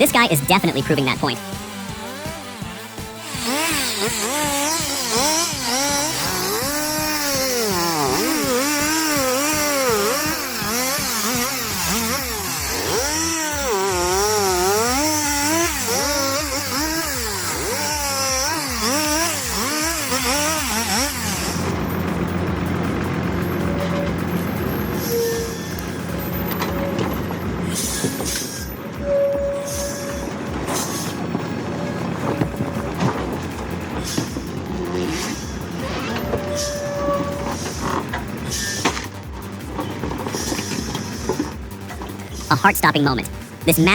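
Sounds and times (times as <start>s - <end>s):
background music: 0.0s - 19.7s, 32.3s - 43.9s
chainsaw revving: 1.4s - 23.8s, 32.6s - 42.4s.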